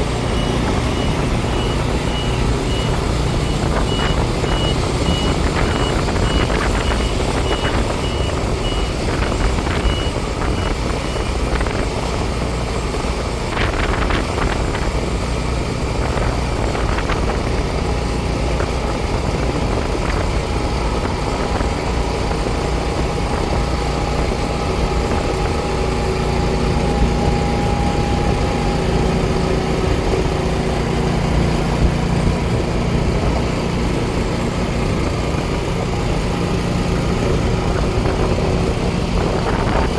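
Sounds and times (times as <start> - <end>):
farm machinery engine running: 0.0 - 39.9
reversing beeper beeps: 0.1 - 11.6.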